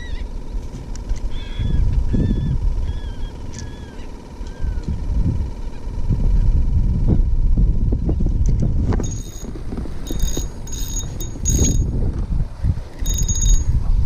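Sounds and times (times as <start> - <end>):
wind buffeting microphone: 1.6 - 3.4, 4.6 - 14.0.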